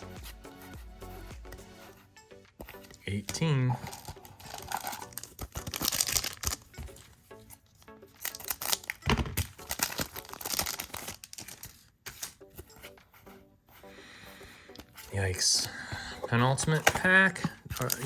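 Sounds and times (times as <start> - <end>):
wrapper tearing and crinkling: 3.8 - 7.1, 8.1 - 12.5, 17.6 - 18.0.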